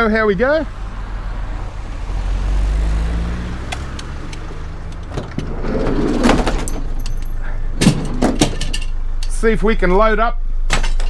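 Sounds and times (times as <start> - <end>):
car engine humming: 0.0 - 11.0
rustling clatter: 3.7 - 10.1, 10.7 - 11.0.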